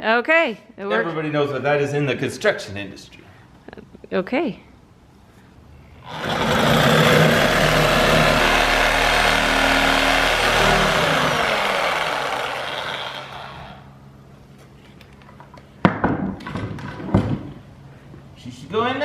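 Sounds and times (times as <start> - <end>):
circular saw cutting board: 6.0 - 13.9.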